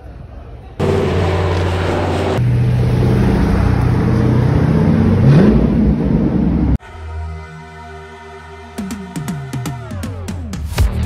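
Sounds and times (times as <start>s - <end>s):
car engine and exhaust: 0.8s - 6.8s.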